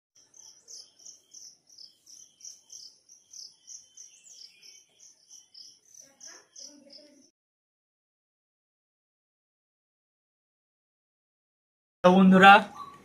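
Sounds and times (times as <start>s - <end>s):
small birds chirping: 0.2s - 7.3s, 12.4s - 13.0s.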